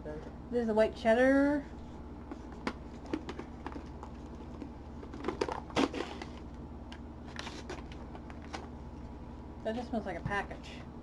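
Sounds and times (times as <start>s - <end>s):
plastic packaging crinkling: 2.8s - 8.8s.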